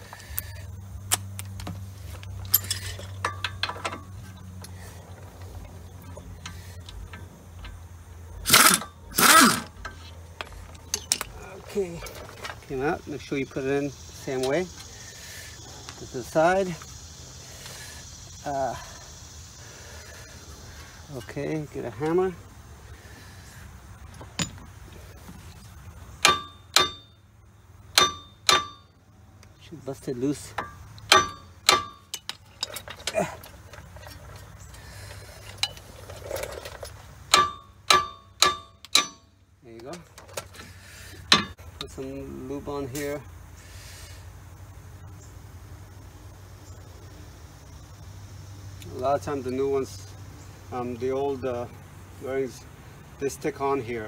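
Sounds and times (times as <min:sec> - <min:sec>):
metal tools clinking: 0:00.1 - 0:13.3, 0:24.1 - 0:24.7, 0:30.3 - 0:42.0
hammer ringing on steel: 0:26.3 - 0:27.1, 0:28.0 - 0:28.9, 0:31.1 - 0:32.0.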